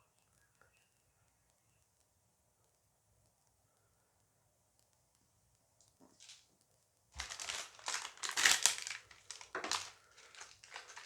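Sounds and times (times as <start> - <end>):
wrapper crinkling: 7.2 - 11.0.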